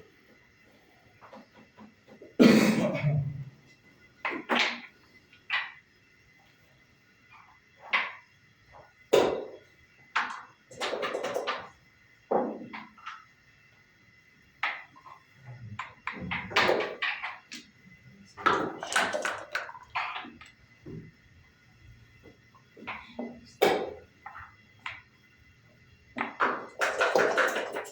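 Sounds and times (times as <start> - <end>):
dice rattling on board: 10.2 - 11.7, 18.4 - 20.4, 26.2 - 27.9.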